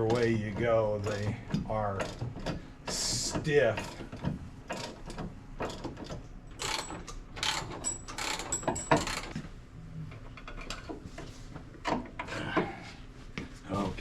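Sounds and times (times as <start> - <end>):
hand ratchet clicking: 3.8 - 9.4.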